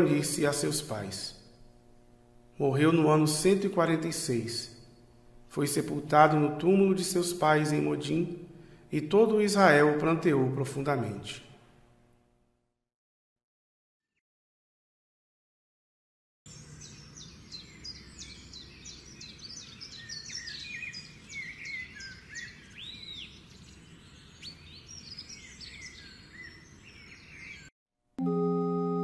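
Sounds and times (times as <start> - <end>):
organ chord: 0.0 - 11.2, 28.2 - 29.0
small birds chirping and singing: 16.5 - 27.7.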